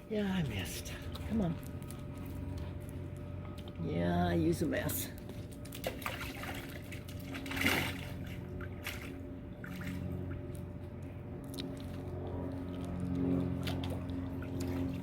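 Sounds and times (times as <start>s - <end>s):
steady low hum: 0.0s - 15.0s
water trickling and splashing: 4.6s - 10.6s, 13.5s - 15.0s.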